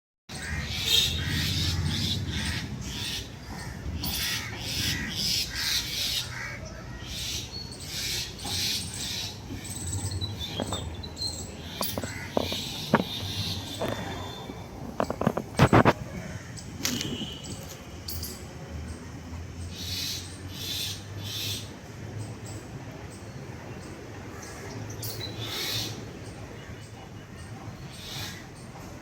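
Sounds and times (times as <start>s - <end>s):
birds giving harsh scolding calls: 0.3s - 18.4s, 19.6s - 21.8s, 24.3s - 28.8s.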